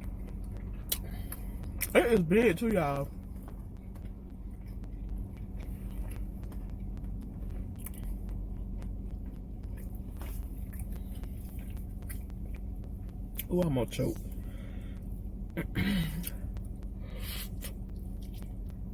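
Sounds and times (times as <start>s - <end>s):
steady low hum: 0.0s - 18.9s
person chewing: 0.1s - 1.9s, 3.2s - 13.5s, 14.1s - 18.9s
wet mouth clicks: 0.6s - 1.9s, 7.7s - 8.2s, 9.7s - 12.7s, 15.6s - 18.7s.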